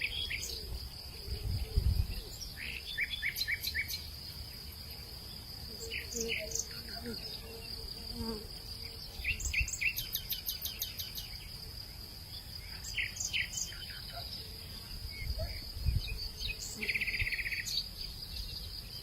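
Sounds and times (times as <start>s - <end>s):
insects droning: 0.0s - 19.0s
low wind rumble: 0.6s - 2.6s.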